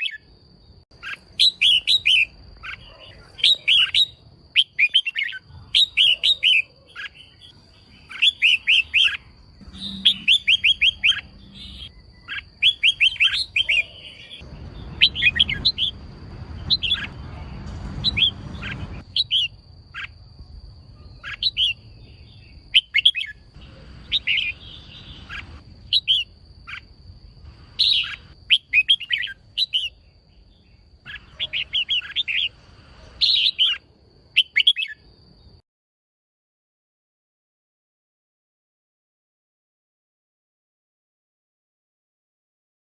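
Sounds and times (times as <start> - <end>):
bird chirping: 0.0 - 35.6
faint high whine: 7.3 - 34.0.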